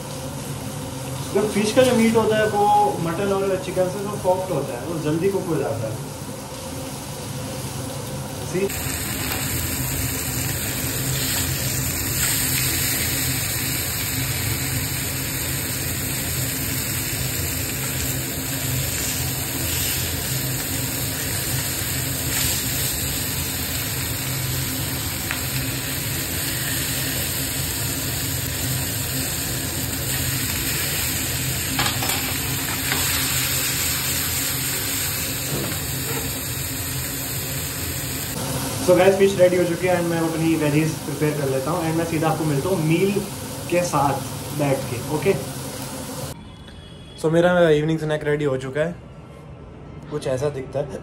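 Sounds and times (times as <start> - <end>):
fish sizzling in a pan: 6.3 - 46.4.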